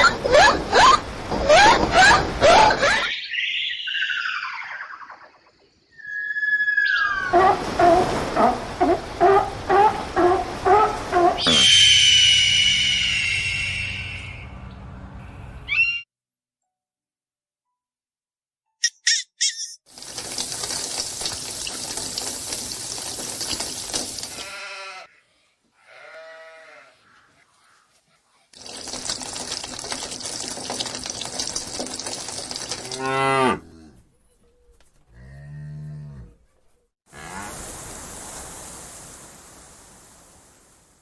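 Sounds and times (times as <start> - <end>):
cattle mooing: 32.9 - 34.0
steady hissing noise: 37.4 - 41.0.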